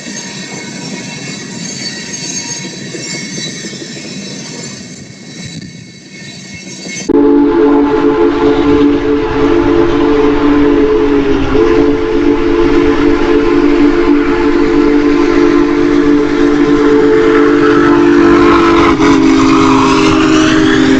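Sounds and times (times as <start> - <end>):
train rumble: 0.0 - 20.9
locomotive air horn blast: 7.1 - 20.9.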